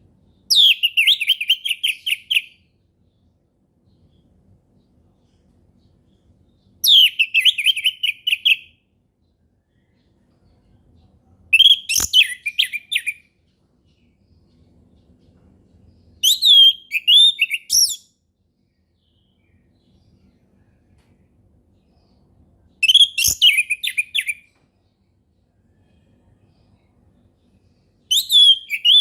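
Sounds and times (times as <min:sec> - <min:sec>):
thrush singing whistled notes: 0:16.2 - 0:18.2, 0:22.8 - 0:24.4, 0:28.1 - 0:29.0.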